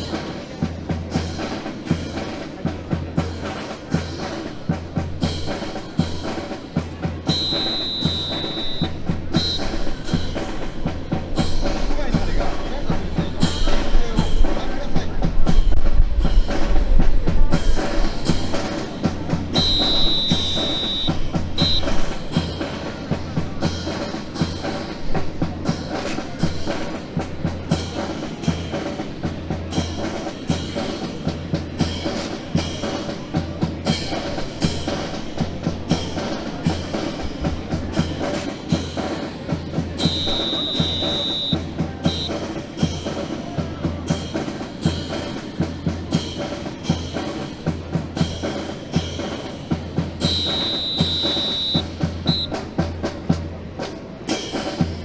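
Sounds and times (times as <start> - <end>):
music with drum beat: 0.0 - 55.0
high held tone: 7.3 - 9.0, 19.6 - 22.0, 40.0 - 41.6, 50.3 - 52.5.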